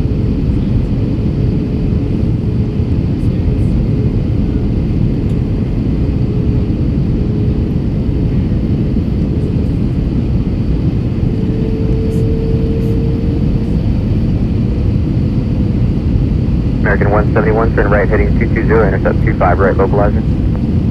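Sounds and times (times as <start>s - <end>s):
jet engines and airflow: 0.0s - 20.9s
faint steady hum: 16.7s - 20.9s.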